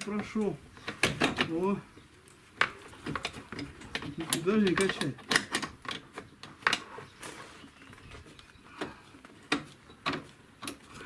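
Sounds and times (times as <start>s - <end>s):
metallic clicks and knocks: 0.0s - 1.7s, 2.6s - 6.9s, 9.5s - 10.9s.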